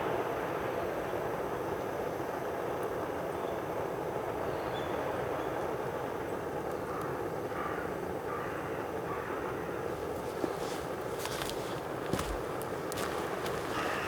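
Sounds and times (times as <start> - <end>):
faint crackles: 9.8 - 14.0.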